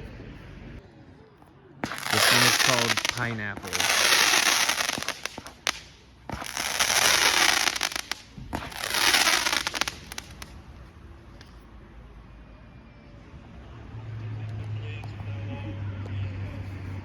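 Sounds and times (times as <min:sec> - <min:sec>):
firework bangs: 0:01.8 - 0:10.6
fireworks crackling: 0:01.8 - 0:11.5.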